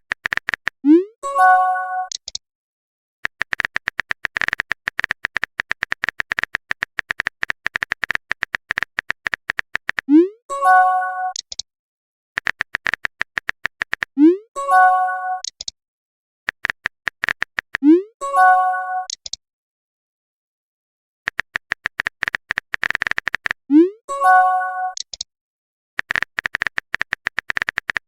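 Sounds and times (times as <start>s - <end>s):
phone keyboard typing clicks: 0.0s - 0.8s, 2.1s - 2.4s, 3.2s - 10.1s, 11.3s - 11.6s, 12.4s - 14.2s, 15.4s - 15.8s, 16.5s - 17.9s, 19.0s - 19.4s, 21.3s - 23.6s, 24.9s - 25.3s, 26.0s - 28.0s
message chime: 14.6s - 15.4s.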